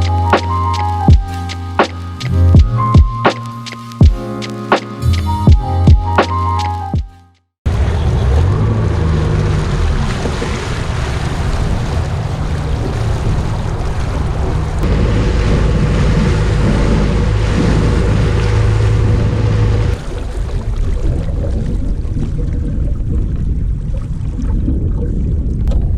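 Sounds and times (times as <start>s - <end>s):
lake water: 0.0s - 4.7s, 7.7s - 25.9s
wind buffeting microphone: 7.9s - 25.9s.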